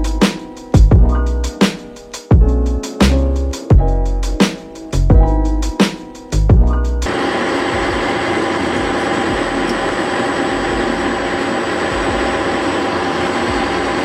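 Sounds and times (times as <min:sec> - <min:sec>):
metal lathe running: 0:07.1 - 0:14.0.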